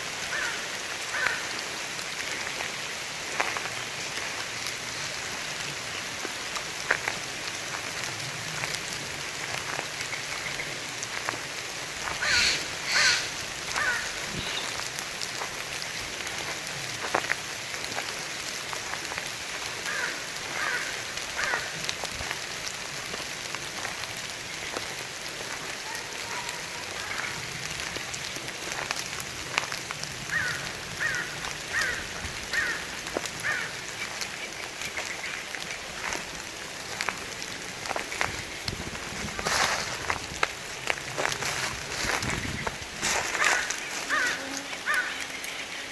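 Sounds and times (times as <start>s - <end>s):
steady rain in forest: 0.0s - 45.9s
bird calling: 12.1s - 14.9s, 43.3s - 45.9s.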